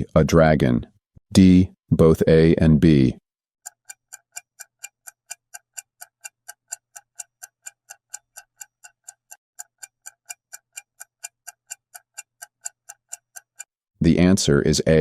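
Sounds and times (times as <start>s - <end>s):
clock ticking: 3.6s - 13.7s.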